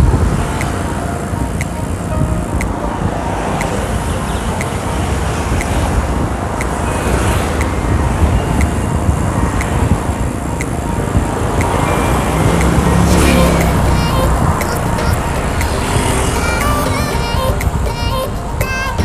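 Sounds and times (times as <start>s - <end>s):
wind and road noise: 0.0s - 19.0s
background music with beat: 9.6s - 19.0s.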